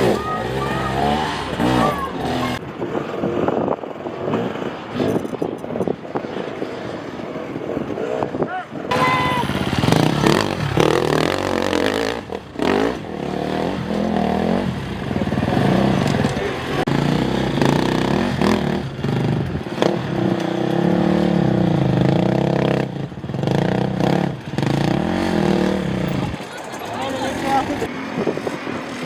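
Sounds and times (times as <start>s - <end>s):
dirt bike engine revving: 0.0s - 2.7s, 8.9s - 27.9s.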